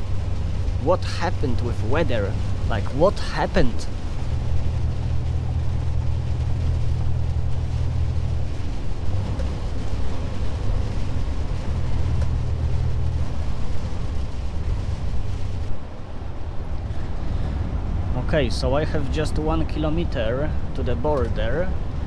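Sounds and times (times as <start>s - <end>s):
road noise hiss: 0.0s - 22.0s
truck engine drone: 0.0s - 22.0s.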